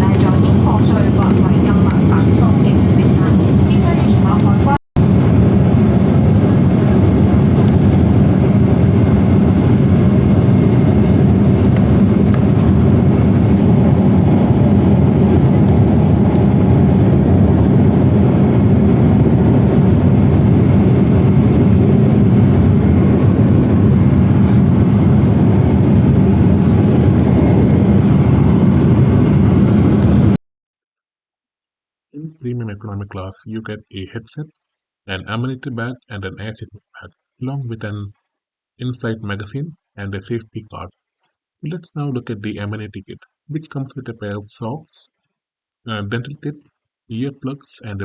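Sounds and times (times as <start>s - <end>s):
jet engine cabin rumble: 0.0s - 30.4s.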